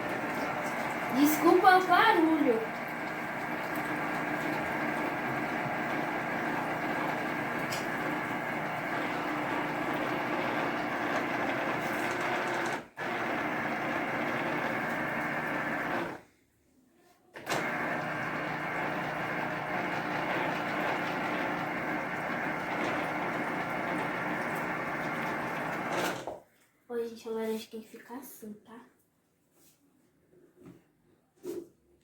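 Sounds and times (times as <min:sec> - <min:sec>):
electric juicer motor running: 0:00.0 - 0:16.2, 0:17.4 - 0:26.4.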